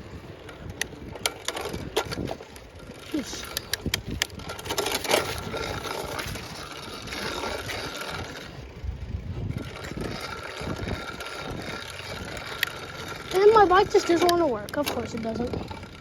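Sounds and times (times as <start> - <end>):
bicycle tyre and drivetrain noise: 0.0 - 16.0
wind buffeting microphone: 0.0 - 16.0.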